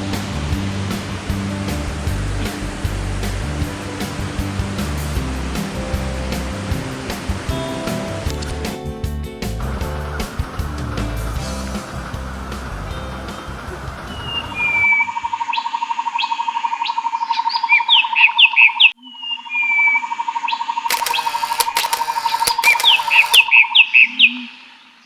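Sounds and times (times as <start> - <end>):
music playing: 0.0 - 15.1
birds chirping: 9.6 - 15.4.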